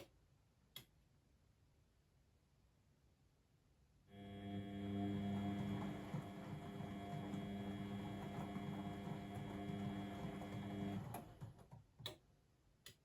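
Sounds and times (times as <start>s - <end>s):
washing machine hum: 4.1s - 12.0s.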